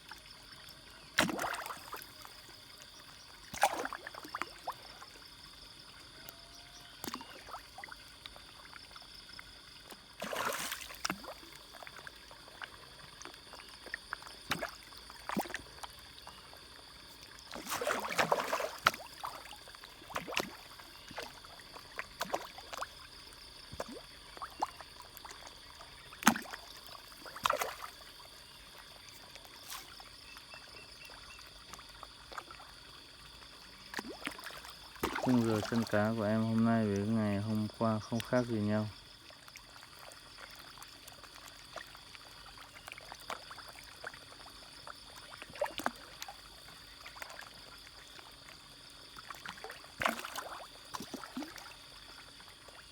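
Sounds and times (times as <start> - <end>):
fish splashing at water surface: 1.2 - 2.5, 3.4 - 4.8, 10.1 - 15.9, 17.5 - 22.9, 26.1 - 28.3, 33.9 - 38.5, 49.2 - 52.2.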